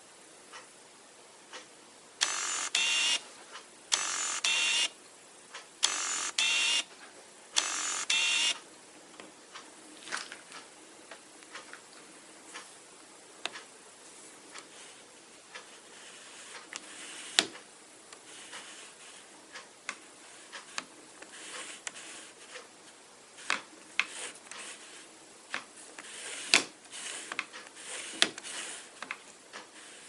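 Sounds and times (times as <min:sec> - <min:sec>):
autofocus motor whirring: 0:02.2 - 0:03.2, 0:03.9 - 0:04.9, 0:05.8 - 0:06.8, 0:07.6 - 0:08.6.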